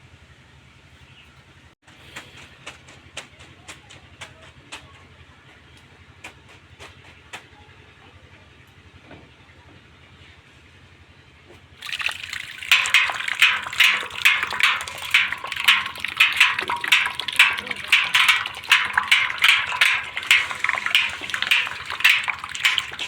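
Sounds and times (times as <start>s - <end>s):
splashing churning water: 11.8s - 23.0s.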